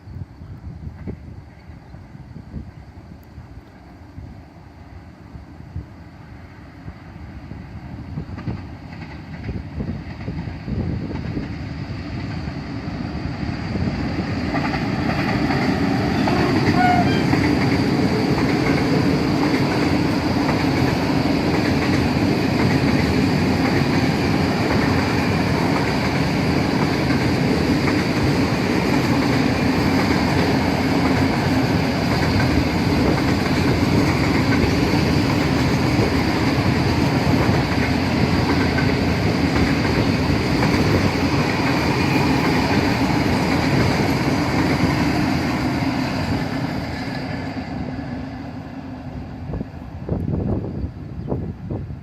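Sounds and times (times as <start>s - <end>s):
freight train wheels clattering on rails: 8.1s - 48.2s.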